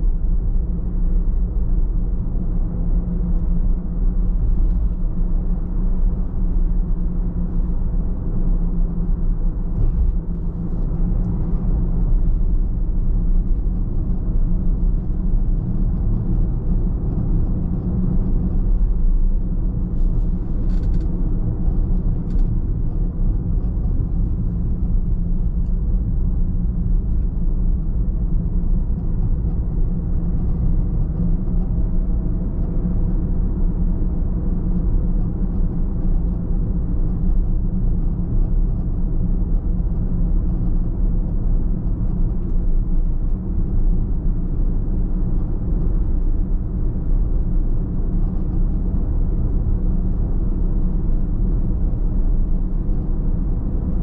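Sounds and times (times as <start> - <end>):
car driving rumble: 0.0 - 54.0.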